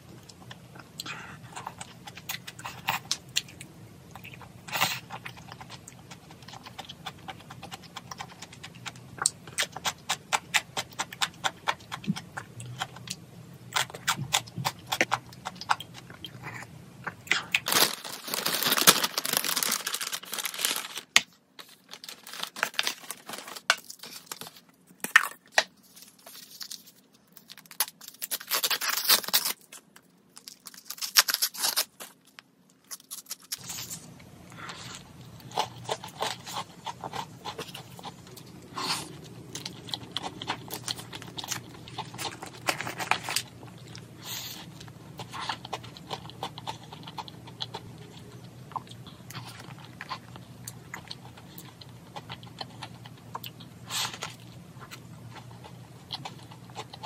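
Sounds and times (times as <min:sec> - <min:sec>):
chewing and crunching: 0:00.0 - 0:57.0
wrapping crinkling: 0:17.3 - 0:38.1.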